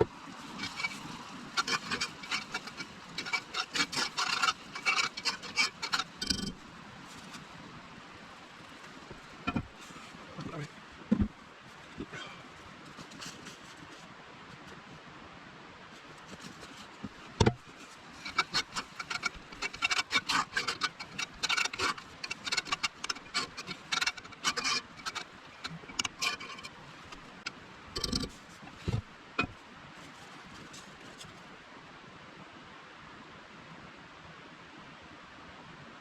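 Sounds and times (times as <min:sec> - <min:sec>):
clicks and scrapes while cooking: 0:00.3 - 0:07.7, 0:08.3 - 0:14.0, 0:16.1 - 0:31.4.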